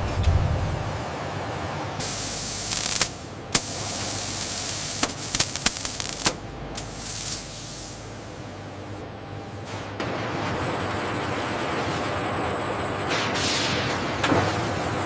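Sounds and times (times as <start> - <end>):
hissing air bursts: 2.0 - 8.6.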